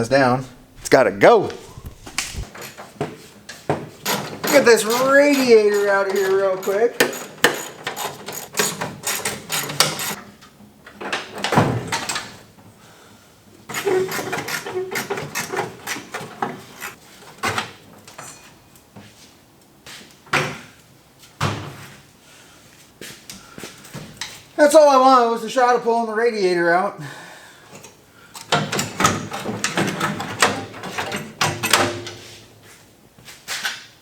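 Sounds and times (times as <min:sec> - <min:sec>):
scraping: 0:00.0 - 0:02.8, 0:04.1 - 0:08.5
metal clanks and rattles: 0:01.6 - 0:12.6, 0:28.4 - 0:32.2.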